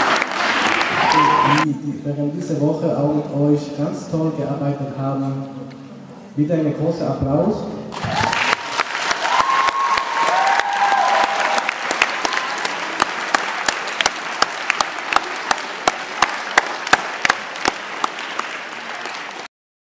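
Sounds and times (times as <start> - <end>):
audience applauding: 0.0 - 1.7, 8.0 - 19.5.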